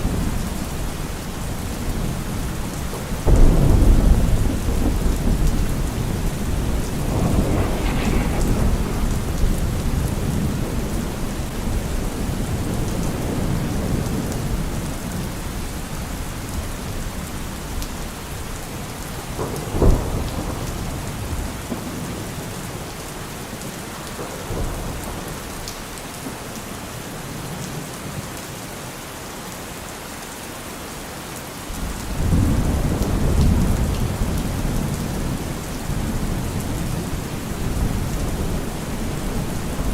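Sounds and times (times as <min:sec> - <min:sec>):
thunder rumbling: 0:00.0 - 0:15.3
steady rain: 0:00.0 - 0:39.9
thunderclap: 0:02.8 - 0:15.2, 0:19.2 - 0:22.5.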